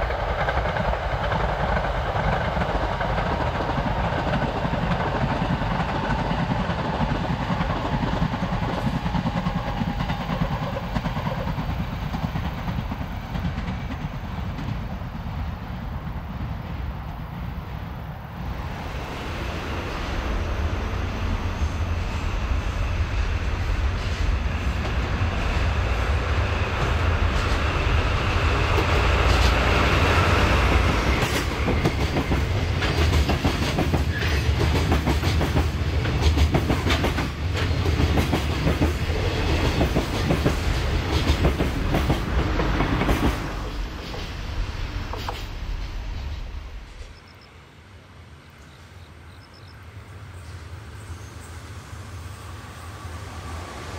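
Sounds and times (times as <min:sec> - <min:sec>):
train wheels clicking on rail joints: 0:00.0 - 0:17.3, 0:26.6 - 0:47.5
diesel locomotive running: 0:00.0 - 0:53.9.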